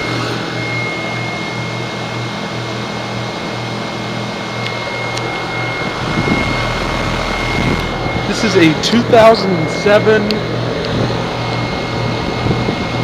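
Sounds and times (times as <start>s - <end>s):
compressor hum pulsing: 0.0s - 13.0s
condenser fan rushing: 0.0s - 13.0s
thin high tone: 4.5s - 10.6s.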